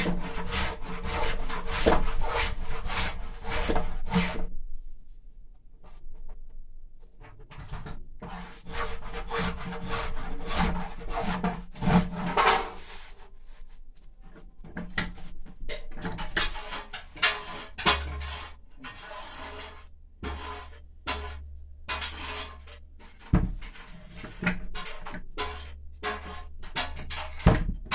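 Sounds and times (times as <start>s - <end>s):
hand tool scraping wood: 0.0s - 4.5s, 8.2s - 13.7s, 16.1s - 27.9s.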